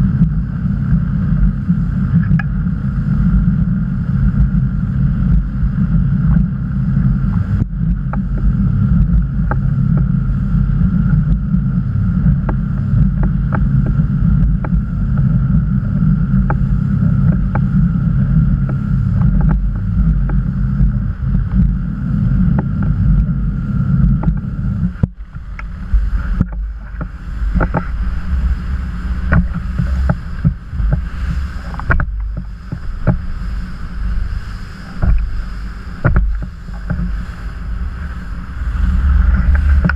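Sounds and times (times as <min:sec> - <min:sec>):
motorboat engine rumble: 0:00.0 - 0:39.9
water slapping against hull: 0:06.2 - 0:21.8, 0:24.0 - 0:39.9.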